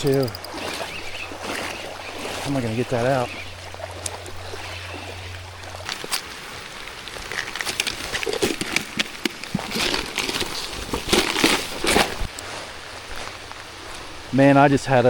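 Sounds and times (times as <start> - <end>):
water sloshing and splashing: 0.0 - 14.2.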